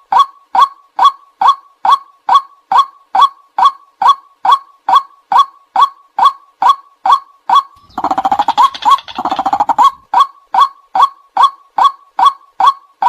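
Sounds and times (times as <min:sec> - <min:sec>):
rapid rough croaking: 0:07.8 - 0:10.0
waterhen calling monotonous note: 0:07.8 - 0:10.0.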